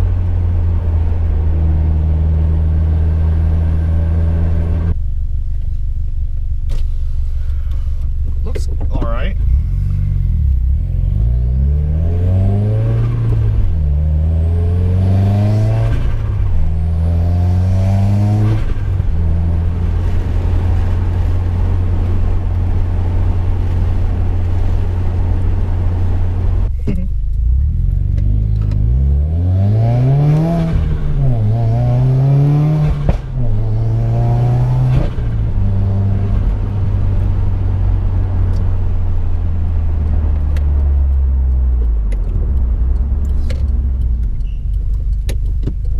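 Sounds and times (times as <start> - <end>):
car engine accelerating through gears: 0.0 - 5.0, 9.4 - 45.9.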